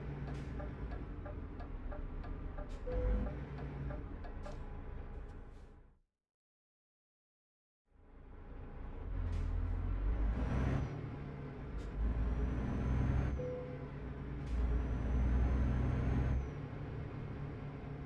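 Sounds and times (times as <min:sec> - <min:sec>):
diesel truck engine under load: 0:08.7 - 0:18.0.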